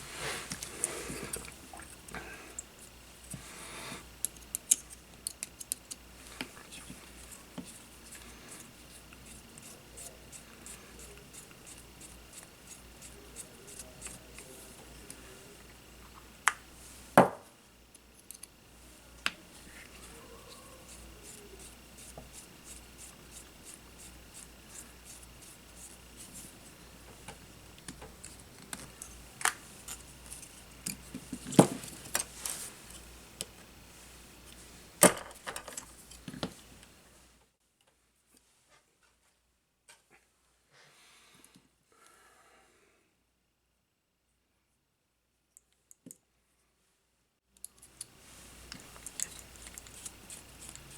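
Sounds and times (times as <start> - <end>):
faint steady hum: 0.0 - 50.9
small tools clicking and tapping: 4.2 - 6.0, 17.9 - 18.6.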